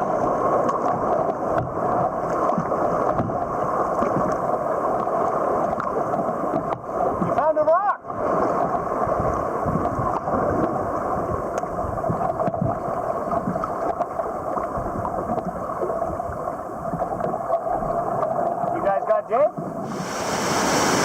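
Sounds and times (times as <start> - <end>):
river water rushing through rapids: 19.8 - 21.0.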